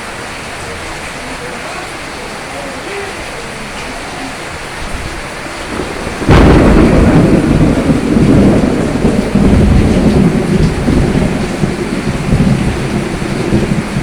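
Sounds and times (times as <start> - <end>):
steady rain: 0.0 - 14.0
rolling thunder: 4.6 - 14.0.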